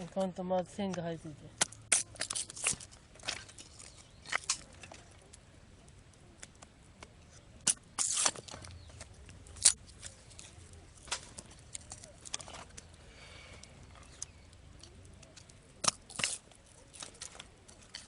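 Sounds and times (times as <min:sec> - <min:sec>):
firewood cracking when split: 0:00.9 - 0:18.0
wood fibres tearing: 0:01.6 - 0:05.4, 0:06.4 - 0:18.0.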